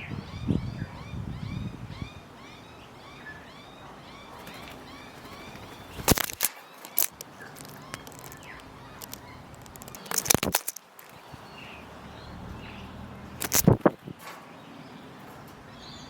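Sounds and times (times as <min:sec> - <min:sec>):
faint bird chirping: 0:00.0 - 0:16.0
sharp clicks and knocks: 0:06.0 - 0:11.3, 0:13.4 - 0:14.4.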